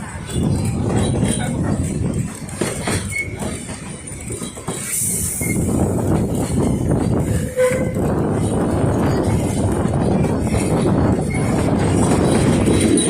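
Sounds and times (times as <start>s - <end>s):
steam train rumbling: 0.0s - 13.0s
wheels clattering on rails: 0.0s - 13.0s
steam hiss: 4.8s - 6.0s.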